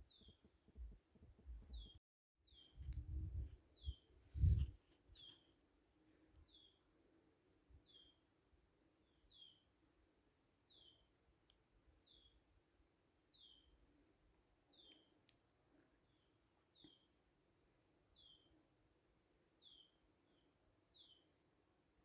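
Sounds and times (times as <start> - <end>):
dull low rumbles: 2.8 - 4.8.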